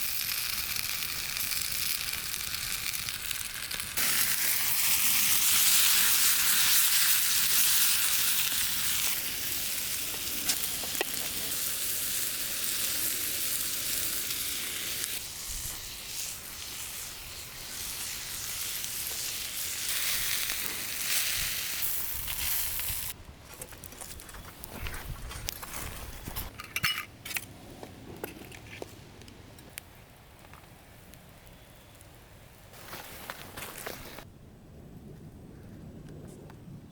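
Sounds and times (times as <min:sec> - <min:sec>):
food sizzling in a pan: 0:00.0 - 0:23.2.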